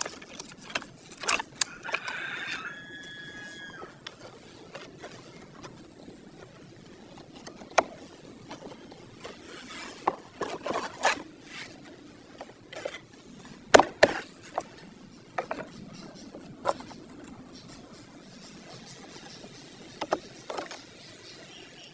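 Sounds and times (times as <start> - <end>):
tools clicking and knocking: 0.0 - 2.1.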